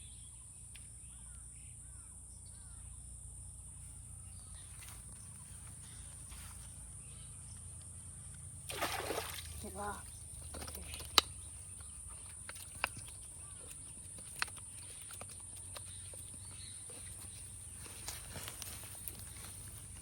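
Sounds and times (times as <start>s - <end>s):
sharp taps and knocks: 10.4s - 17.5s.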